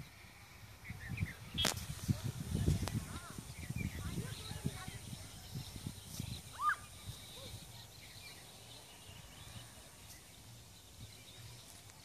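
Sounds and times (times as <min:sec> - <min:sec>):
bird call: 0:05.5 - 0:10.2.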